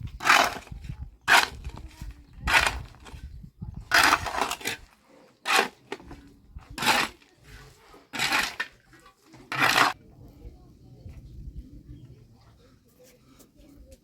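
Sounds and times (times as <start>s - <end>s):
hand tool scraping: 0.0s - 3.2s, 3.8s - 10.0s.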